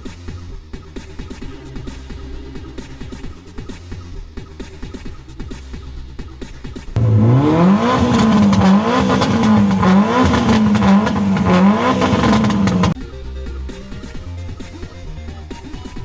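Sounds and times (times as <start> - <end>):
car engine revving hard: 7.0 - 13.0.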